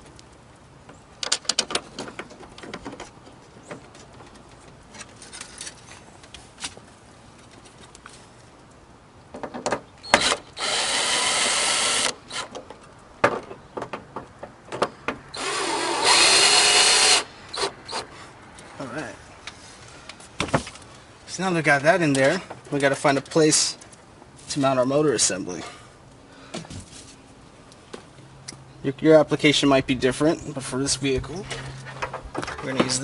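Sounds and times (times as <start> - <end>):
hardware clicks and knocks: 0.8 - 5.8, 9.3 - 10.3, 12.5 - 15.3
cordless drill driving screws: 10.1 - 12.5, 15.4 - 18.0.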